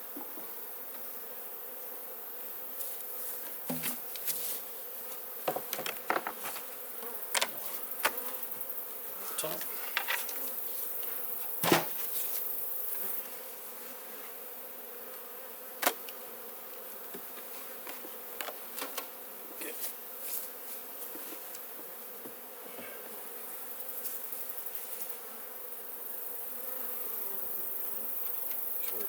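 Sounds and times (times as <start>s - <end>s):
bees buzzing: 0.0s - 29.0s
knocks from beehive handling: 3.4s - 4.3s, 5.4s - 8.5s, 11.5s - 12.1s, 15.8s - 16.2s, 17.1s - 19.2s.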